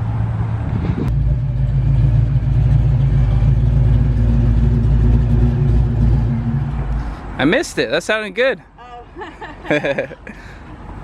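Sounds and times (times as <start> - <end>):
car engine running loudly: 0.6 - 7.4.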